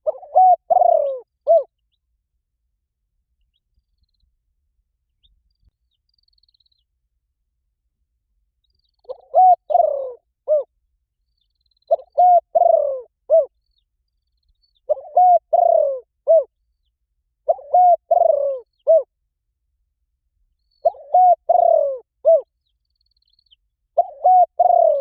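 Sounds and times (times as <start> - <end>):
dove cooing: 0.0 - 1.7, 9.0 - 10.7, 11.9 - 13.5, 14.9 - 16.5, 17.5 - 19.1, 20.8 - 22.5, 24.0 - 25.0.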